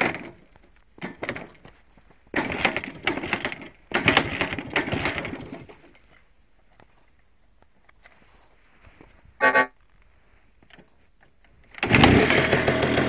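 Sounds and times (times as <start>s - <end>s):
motorcycle engine turning over: 2.2s - 5.9s, 11.7s - 13.0s.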